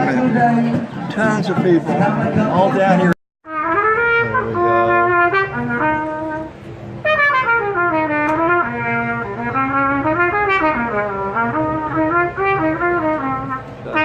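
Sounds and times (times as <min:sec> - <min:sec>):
trumpet-like brass melody: 0:03.4 - 0:14.0.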